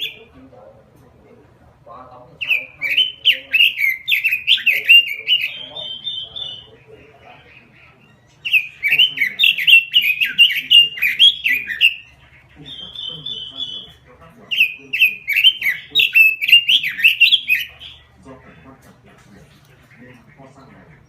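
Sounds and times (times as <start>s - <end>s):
bird singing whistled notes and trills: 0.0s - 0.3s, 2.4s - 18.2s.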